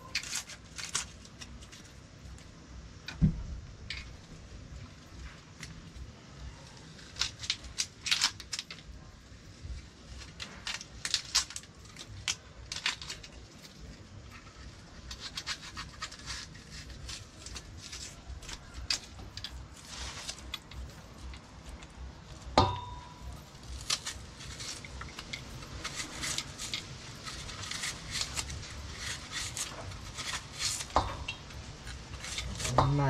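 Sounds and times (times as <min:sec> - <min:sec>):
knife cutting an onion: 0:14.7 - 0:33.0.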